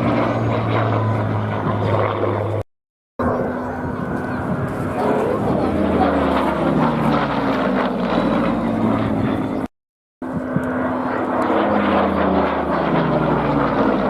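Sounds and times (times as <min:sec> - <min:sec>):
aircraft piston engines droning: 0:00.0 - 0:02.6, 0:03.2 - 0:14.0.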